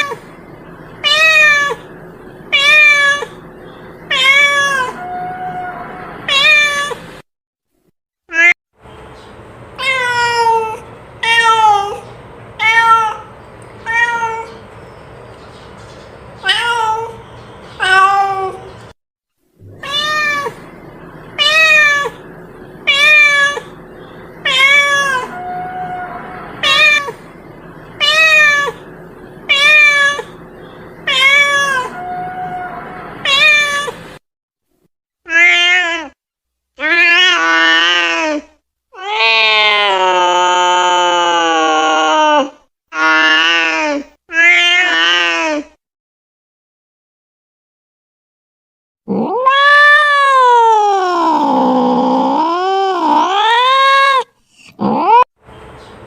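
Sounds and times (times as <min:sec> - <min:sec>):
cat meowing: 0:01.0 - 0:01.9, 0:02.5 - 0:03.4, 0:04.1 - 0:07.0, 0:08.3 - 0:08.6, 0:09.8 - 0:12.0, 0:12.6 - 0:14.6, 0:16.4 - 0:17.2, 0:17.8 - 0:18.7, 0:19.6 - 0:20.7, 0:21.4 - 0:22.2, 0:22.8 - 0:23.8, 0:24.4 - 0:27.2, 0:28.0 - 0:28.9, 0:29.5 - 0:30.4, 0:31.0 - 0:34.0, 0:35.3 - 0:36.2, 0:39.0 - 0:45.6, 0:49.1 - 0:55.3.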